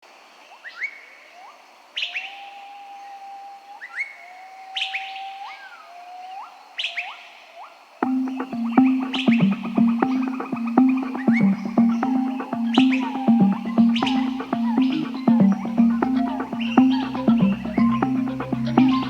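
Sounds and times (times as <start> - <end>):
music: 8.0 - 19.0.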